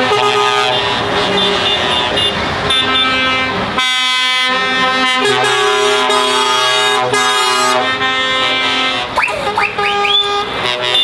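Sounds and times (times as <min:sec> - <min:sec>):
car horns: 0:00.0 - 0:11.0
lorry engines: 0:00.0 - 0:11.0
lorry air horns: 0:03.3 - 0:11.0.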